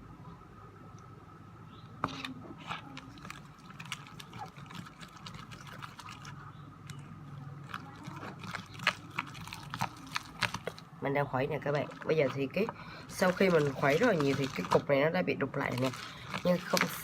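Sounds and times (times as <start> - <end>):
wet squishing of slime: 2.1 - 17.0
stirrer clicking against container: 3.0 - 7.0, 7.6 - 10.8, 11.8 - 14.9, 15.7 - 17.0.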